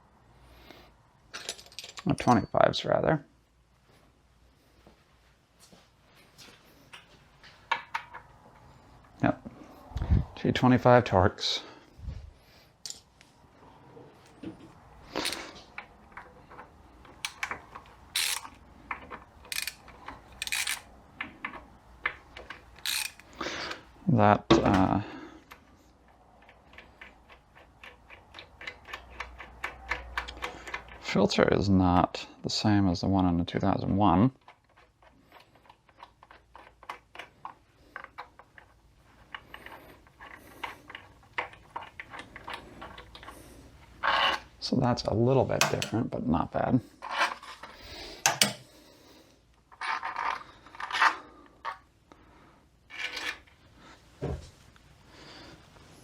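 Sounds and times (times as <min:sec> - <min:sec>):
hand tools and metal parts clicking: 0:01.3 - 0:02.7, 0:15.1 - 0:23.8, 0:26.0 - 0:31.1, 0:47.0 - 0:48.7
metal clicks: 0:15.2 - 0:23.4
ratchet wrench clicking: 0:18.2 - 0:18.6, 0:19.5 - 0:20.9, 0:22.8 - 0:23.4.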